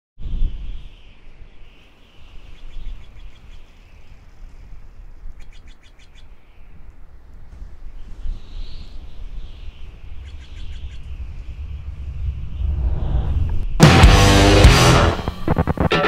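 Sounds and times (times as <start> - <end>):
birds chirping: 0.6 - 14.6
low rumble: 10.3 - 15.5.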